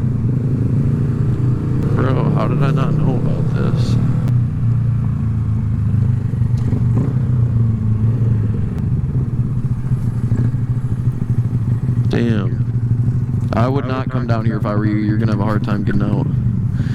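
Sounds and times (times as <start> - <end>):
small motorcycle engine running: 0.0 - 16.9
light engine clatter: 5.7 - 16.9.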